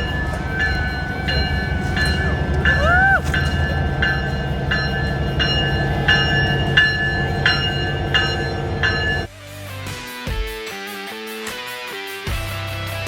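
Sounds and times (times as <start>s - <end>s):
locomotive bell ringing: 0.0s - 9.3s
train rumbling: 0.0s - 9.3s.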